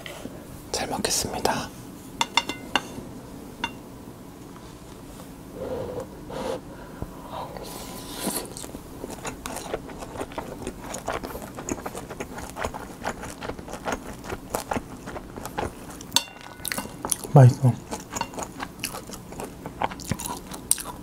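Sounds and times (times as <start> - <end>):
close chewing with mouth clicks: 8.2 - 21.0.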